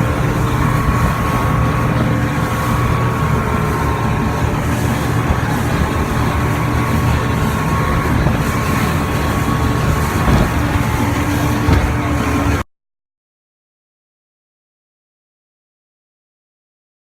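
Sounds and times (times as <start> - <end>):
motorboat engine running: 0.0 - 12.6
water noise: 0.0 - 12.6
wind: 0.0 - 12.6.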